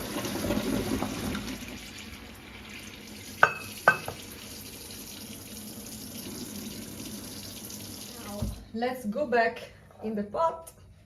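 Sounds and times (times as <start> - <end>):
water pouring into a colander: 0.0 - 8.4.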